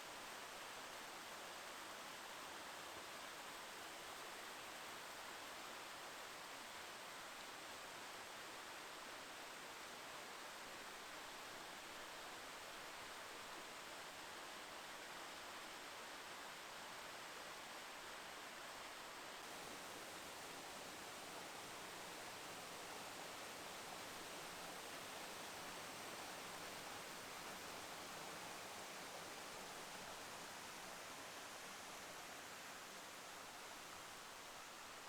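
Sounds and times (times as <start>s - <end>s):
stream water rushing: 19.4s - 35.0s.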